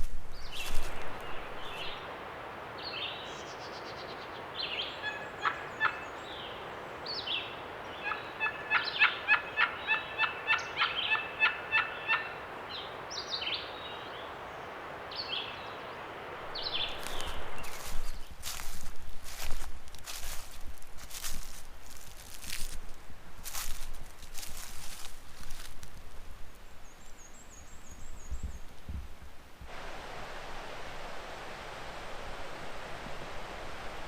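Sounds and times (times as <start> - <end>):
birds downward-sliding calls: 4.6 - 6.6, 7.2 - 12.5, 16.5 - 18.1.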